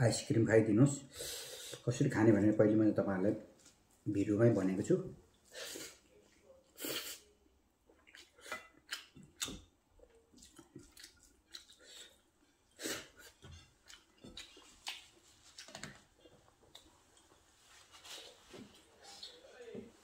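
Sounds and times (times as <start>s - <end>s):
man chewing with smacks: 6.7s - 19.4s.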